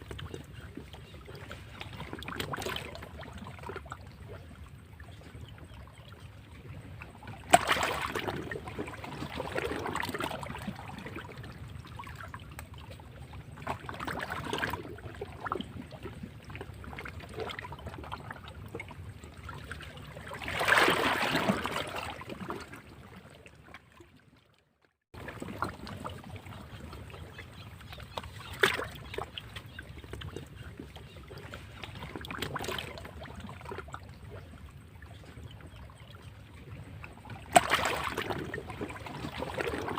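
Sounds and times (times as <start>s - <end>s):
waves splashing against rocks: 7.5s - 10.6s, 20.4s - 22.5s, 37.5s - 39.9s.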